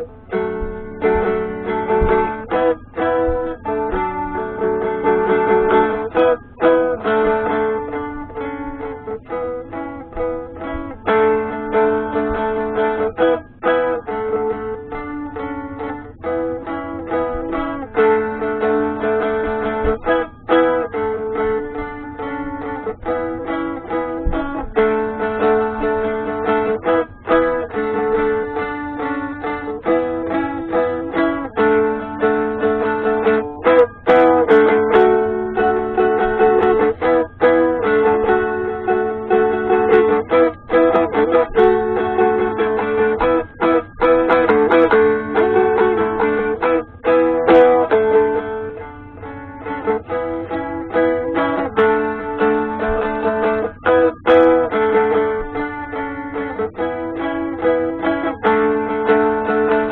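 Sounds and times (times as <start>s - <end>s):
strummed dulcimer melody: 0.0s - 59.9s.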